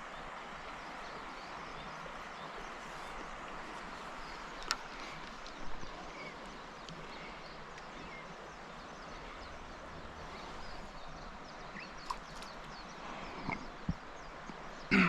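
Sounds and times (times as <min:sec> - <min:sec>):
flowing river water: 0:00.0 - 0:15.0
light clicks: 0:04.5 - 0:05.6.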